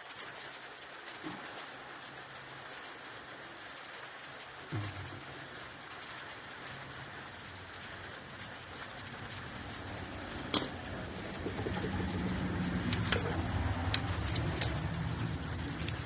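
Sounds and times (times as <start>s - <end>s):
steady low hum: 4.7s - 16.0s.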